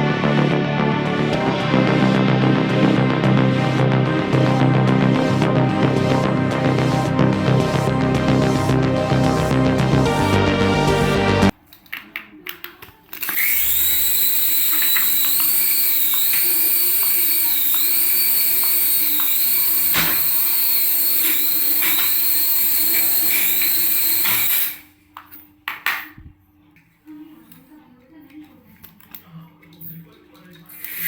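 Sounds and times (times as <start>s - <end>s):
small electric motor whining: 13.2s - 24.8s, 30.7s - 31.0s.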